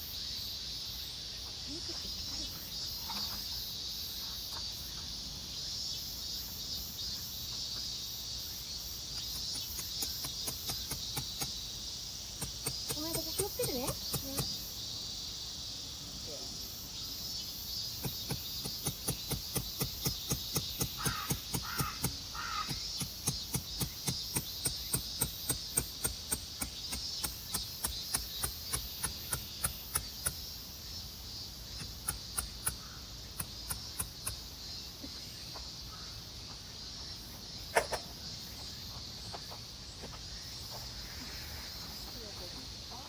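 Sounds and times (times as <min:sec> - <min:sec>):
high insect drone: 0:00.0 - 0:43.0
quick regular clicks: 0:12.4 - 0:14.6, 0:18.0 - 0:30.4, 0:31.8 - 0:32.8, 0:33.4 - 0:34.4
crow cawing: 0:21.0 - 0:22.8.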